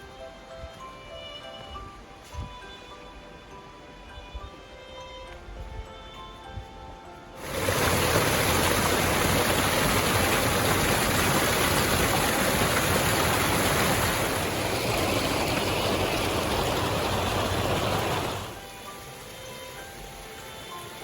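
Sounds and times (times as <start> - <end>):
mountain stream rushing: 7.4 - 19.0.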